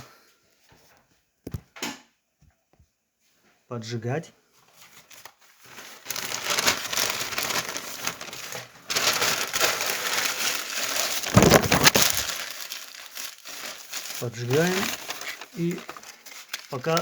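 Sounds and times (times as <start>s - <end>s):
paper crumpling and rustling: 4.6s - 17.0s.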